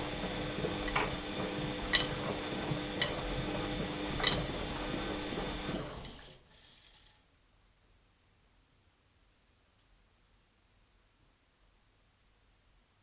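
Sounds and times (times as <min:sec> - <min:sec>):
washing machine humming: 0:00.0 - 0:06.6.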